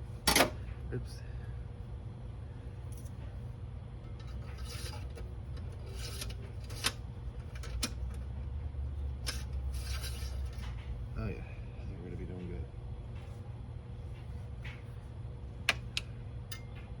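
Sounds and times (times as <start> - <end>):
rubbing and scraping handling noise: 4.1 - 8.0, 9.2 - 10.9.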